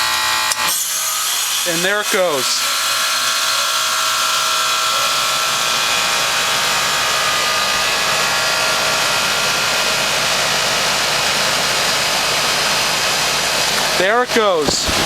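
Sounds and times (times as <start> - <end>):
fan air rushing: 6.3 - 15.0.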